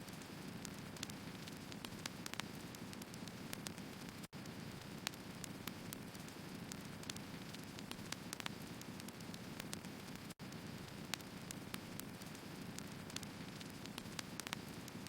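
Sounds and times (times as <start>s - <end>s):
firewood crackling and popping: 0.1s - 15.0s.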